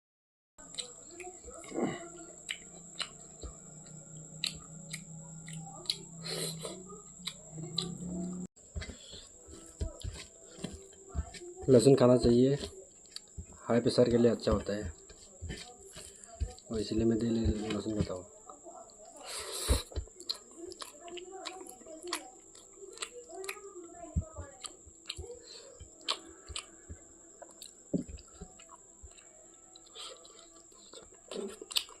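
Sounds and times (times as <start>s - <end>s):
person chewing food: 0.6s - 32.0s
steady low hum: 1.5s - 11.4s.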